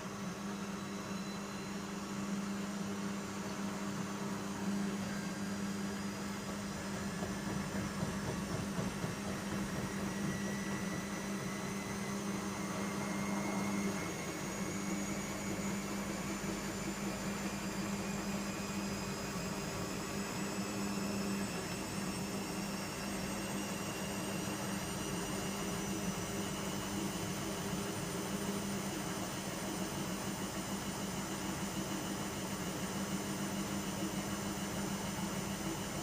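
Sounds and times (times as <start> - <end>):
faint high whines: 0.0 - 7.8
washing machine humming: 0.0 - 36.0.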